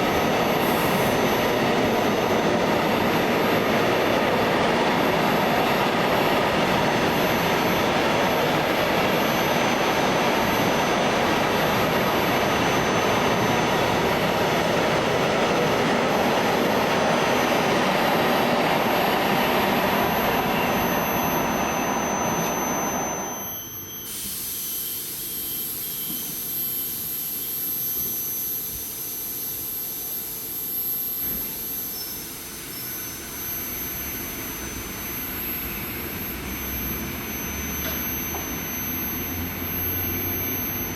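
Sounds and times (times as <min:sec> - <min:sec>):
train passing with rushing rumble: 0:00.0 - 0:23.0
thin high steady whine: 0:00.0 - 0:40.9.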